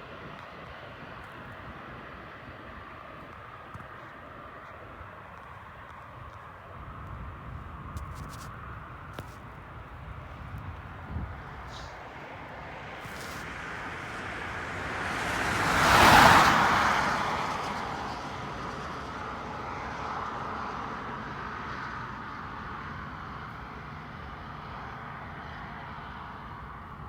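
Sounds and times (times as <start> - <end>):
vehicle passing: 11.4 - 17.9.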